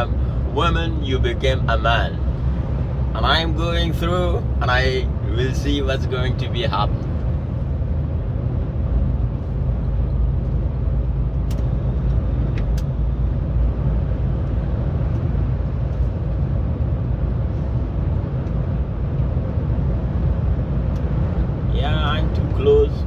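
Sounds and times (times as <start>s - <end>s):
truck engine and road drone: 0.0s - 23.0s.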